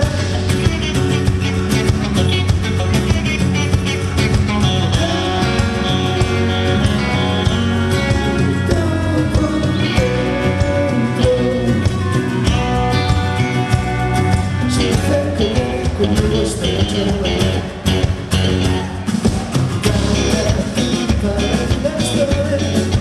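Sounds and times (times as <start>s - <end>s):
person singing: 0.0s - 1.2s, 4.6s - 13.7s, 14.5s - 17.8s, 19.7s - 23.0s
live rock band playing: 0.0s - 23.0s.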